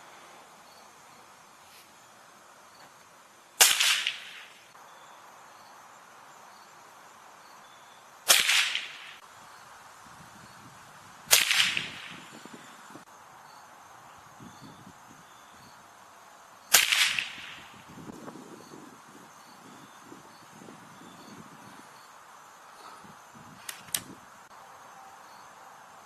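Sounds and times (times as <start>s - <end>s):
air rifle shots: 3.6s - 4.6s, 8.3s - 9.2s, 11.3s - 12.3s, 16.7s - 17.7s.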